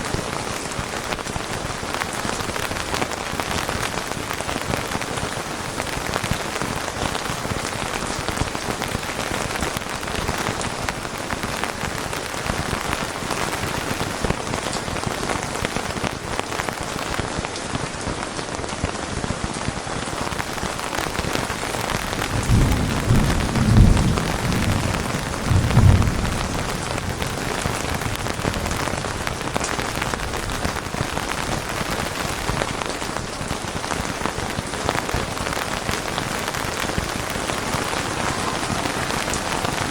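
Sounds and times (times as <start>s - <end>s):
steady rain falling: 0.0s - 39.9s
low roll of thunder: 20.1s - 30.8s, 36.1s - 39.9s.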